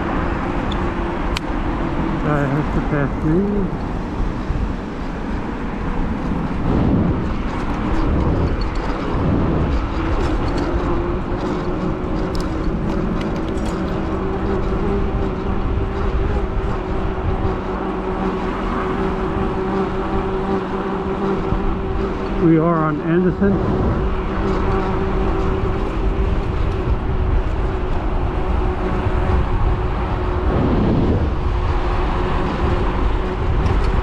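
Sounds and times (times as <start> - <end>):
vehicles passing: 0.0 - 34.0
wind on microphone: 0.0 - 34.0.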